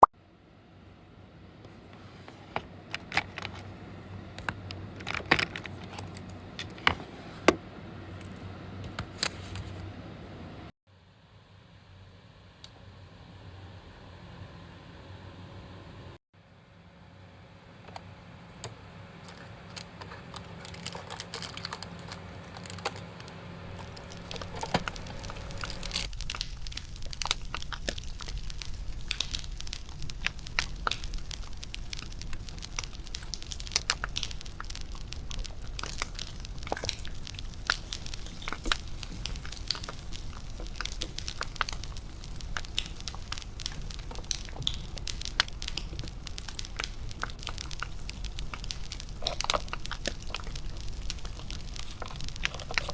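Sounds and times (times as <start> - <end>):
wood fire crackling and popping: 19.2 - 52.9.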